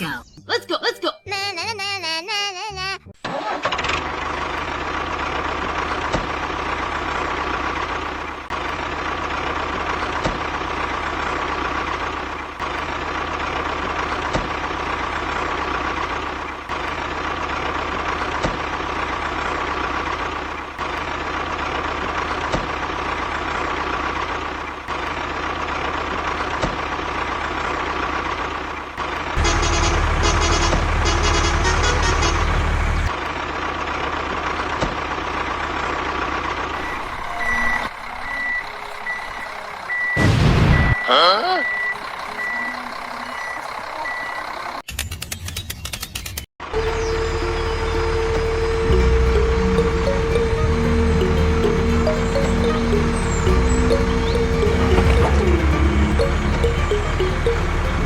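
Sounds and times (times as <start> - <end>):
vehicle motor running: 3.3 - 40.9, 46.6 - 58.0
high beeping: 36.8 - 44.4, 46.8 - 58.0.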